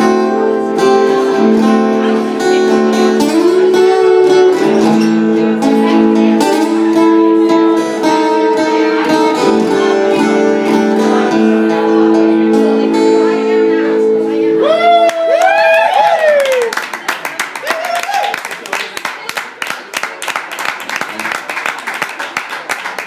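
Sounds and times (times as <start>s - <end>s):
acoustic guitar folk blues: 0.0s - 15.0s.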